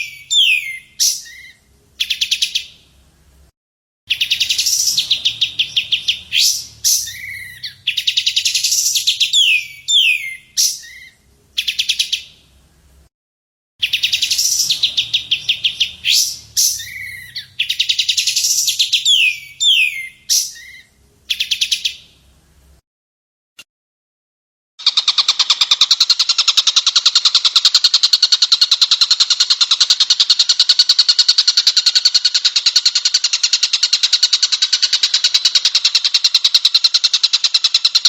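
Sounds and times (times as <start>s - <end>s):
songbird trills and whistles: 0.0s - 2.8s, 4.1s - 12.4s, 13.8s - 22.2s.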